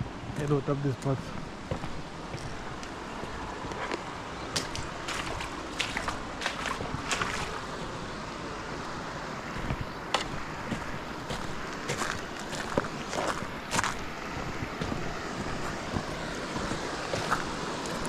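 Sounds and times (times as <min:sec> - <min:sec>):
river water lapping and splashing: 0:00.0 - 0:18.0
wind on microphone: 0:04.6 - 0:08.6, 0:09.5 - 0:18.0.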